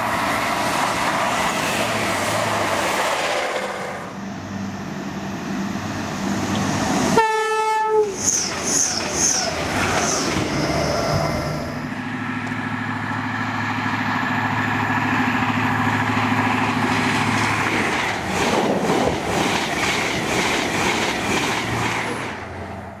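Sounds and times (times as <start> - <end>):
train engine hum: 0.0 - 23.0
train wheels clicking over rail joints: 8.1 - 11.4, 12.4 - 22.5.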